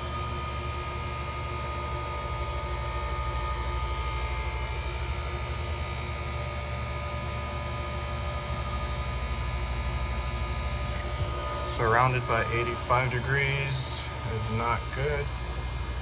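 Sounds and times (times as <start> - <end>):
ice machine humming and throbbing: 0.0 - 16.0
steady high tones: 11.3 - 16.0.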